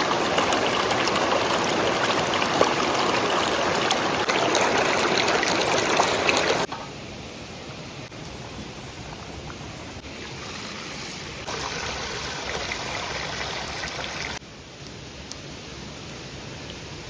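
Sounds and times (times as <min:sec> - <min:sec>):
stream water rushing: 0:00.0 - 0:06.7, 0:11.4 - 0:14.4.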